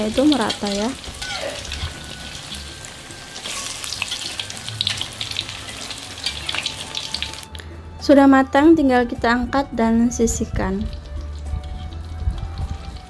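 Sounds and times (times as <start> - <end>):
food deep-frying in oil: 0.0 - 7.5, 10.4 - 13.0.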